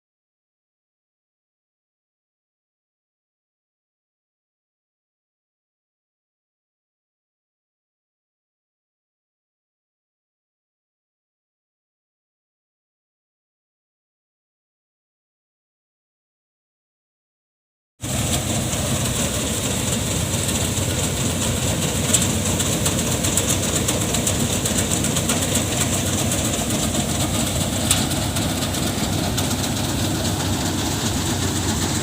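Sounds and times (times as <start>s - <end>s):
threshing machine clatter: 18.0s - 32.0s.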